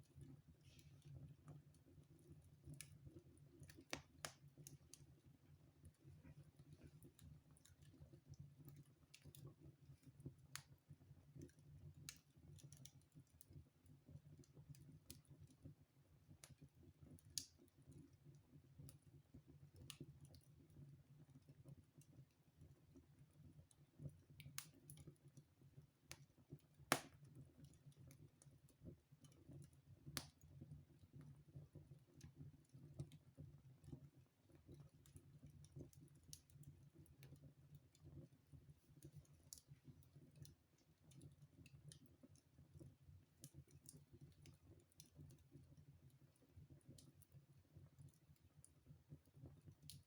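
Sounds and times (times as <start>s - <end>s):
fire crackling and popping: 2.6s - 5.1s, 26.1s - 28.1s.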